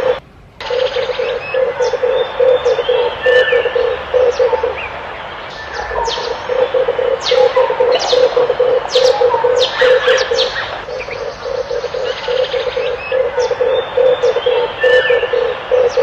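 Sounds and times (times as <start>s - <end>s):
dove cooing: 0.0s - 16.0s
small birds chirping: 0.0s - 16.0s.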